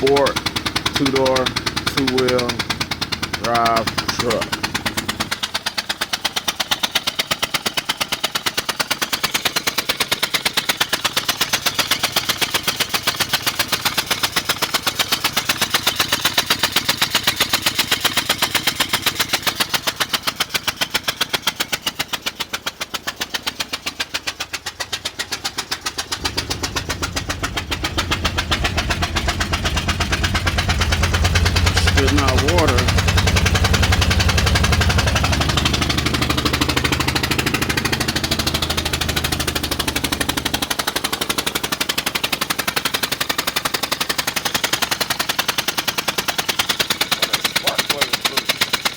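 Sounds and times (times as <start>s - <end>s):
deep engine hum: 0.0s - 7.0s, 22.8s - 48.9s
engine ticking knock: 0.0s - 48.9s.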